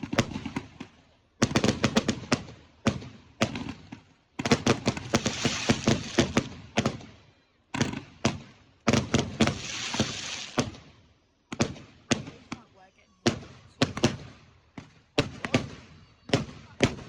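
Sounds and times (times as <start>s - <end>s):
fireworks banging and crackling: 0.0s - 10.9s, 11.5s - 17.0s.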